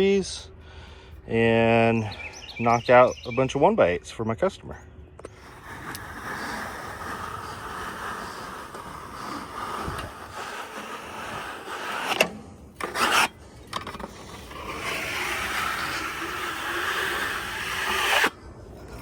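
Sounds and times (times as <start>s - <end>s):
heavy wood scraping: 5.2s - 19.0s.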